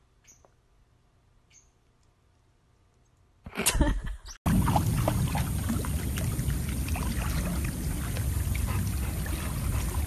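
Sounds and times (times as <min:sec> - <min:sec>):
pool water splashing: 0:04.5 - 0:10.0.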